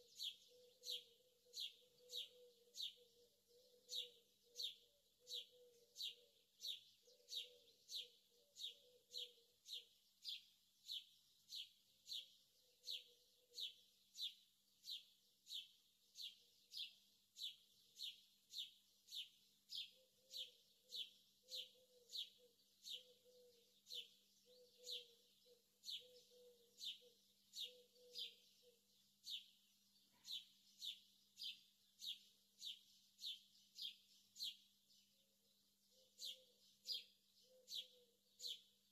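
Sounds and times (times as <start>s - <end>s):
bird chirping: 0.0s - 38.9s.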